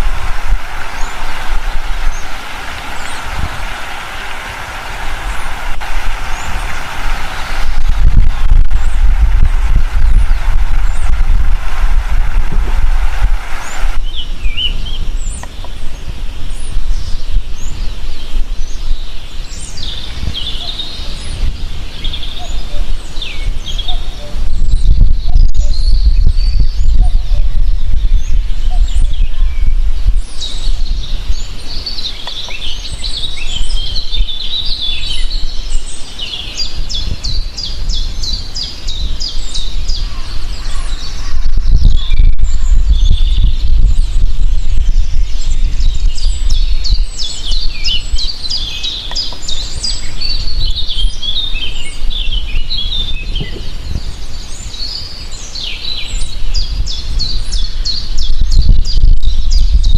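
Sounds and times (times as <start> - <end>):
low rumble: 4.7 - 15.2, 40.2 - 48.2
songbirds chirping and singing: 13.6 - 59.9.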